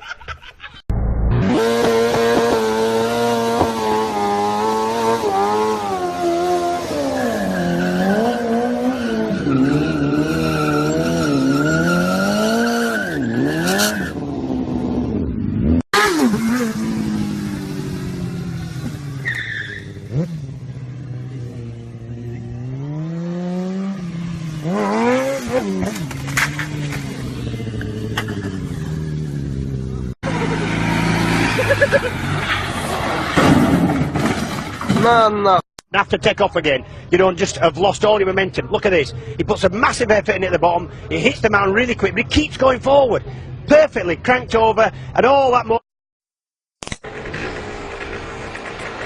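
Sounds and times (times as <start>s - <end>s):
engines revving: 1.2s - 34.9s
tyre squeal: 6.9s - 14.2s, 19.1s - 20.1s.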